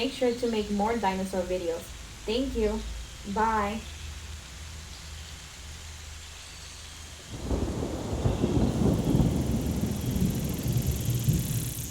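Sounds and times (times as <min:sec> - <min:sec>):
deep crackling rumble: 0:07.3 - 0:11.9.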